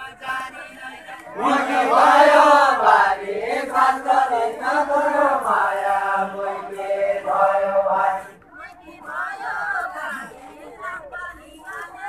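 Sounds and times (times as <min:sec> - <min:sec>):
men singing unaccompanied: 0:00.0 - 0:08.4.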